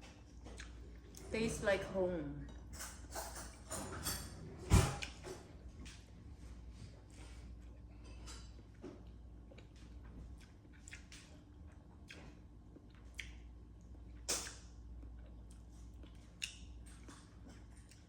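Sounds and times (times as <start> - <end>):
mouth smacks and chewing: 0.4 - 0.8, 9.5 - 18.0.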